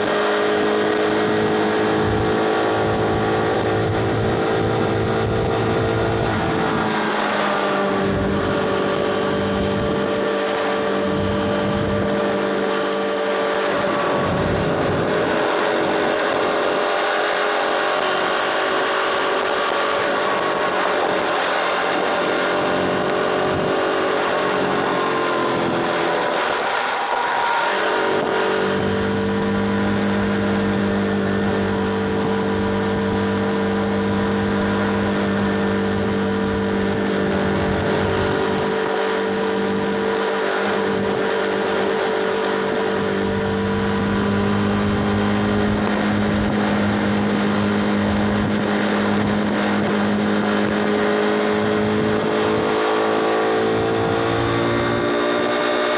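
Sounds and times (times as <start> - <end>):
motorcycle engine cruising: 0.0 - 55.9
wind and road noise: 0.0 - 55.9.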